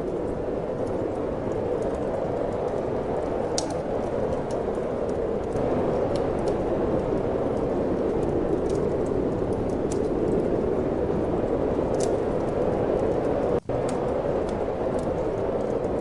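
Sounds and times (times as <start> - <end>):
fire popping: 0.0 - 16.0
wind blowing: 0.0 - 16.0
wood fire crackling: 0.0 - 16.0.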